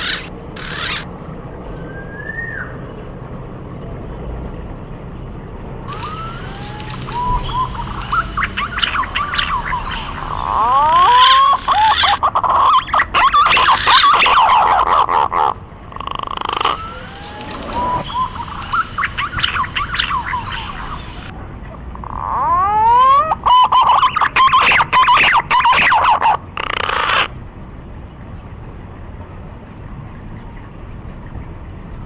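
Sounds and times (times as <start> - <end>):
pigeons whistling calls: 1.8 - 2.8, 5.9 - 15.5, 16.2 - 21.3, 22.4 - 27.3.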